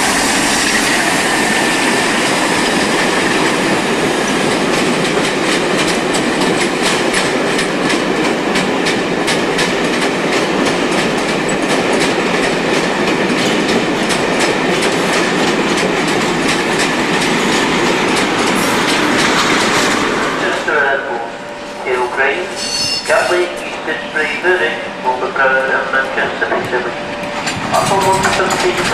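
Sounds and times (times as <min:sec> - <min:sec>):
train rumbling past: 0:00.0 - 0:28.9
wheel clicks over rail joints: 0:27.4 - 0:28.9.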